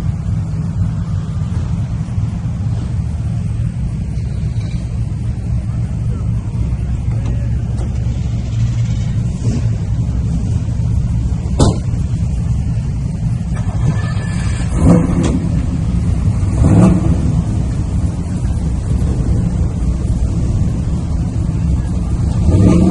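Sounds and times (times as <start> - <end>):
car engine rumbling: 0.0 - 22.9
sharp knock: 11.6 - 11.9.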